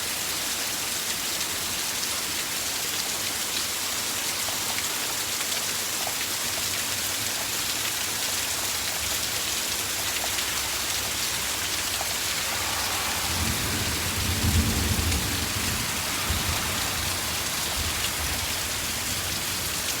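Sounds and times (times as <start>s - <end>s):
rain drops striking a surface: 0.0s - 20.0s
low roll of thunder: 10.8s - 20.0s.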